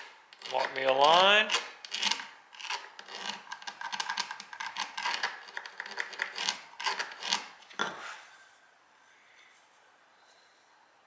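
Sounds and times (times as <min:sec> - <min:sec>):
pencil scratching on wood: 0:01.9 - 0:07.5.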